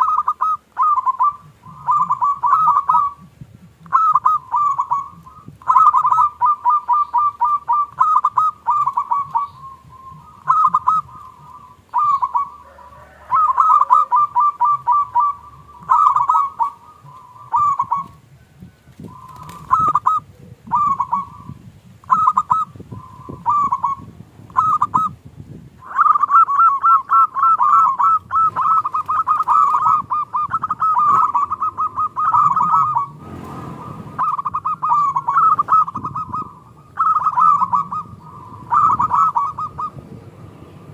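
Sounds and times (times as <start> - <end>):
doves cooing: 0.0 - 40.9
short rushing noise: 32.8 - 34.4.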